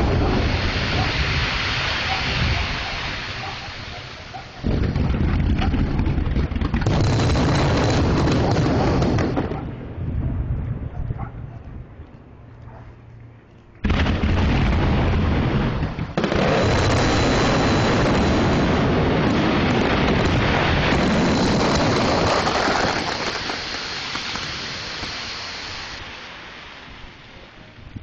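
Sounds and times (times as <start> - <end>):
loud blast-like roar: 16.2 - 23.3.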